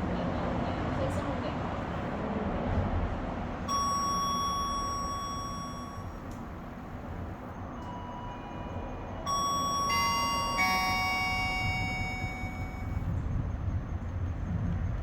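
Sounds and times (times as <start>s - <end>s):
cable car rumble: 0.0s - 15.0s
descending chime: 3.7s - 6.3s, 9.3s - 13.1s.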